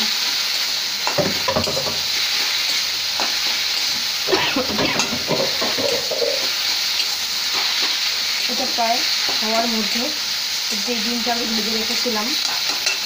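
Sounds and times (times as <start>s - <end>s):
leaves sizzling in oil: 0.0s - 13.0s
spatula scraping pan: 1.1s - 6.6s.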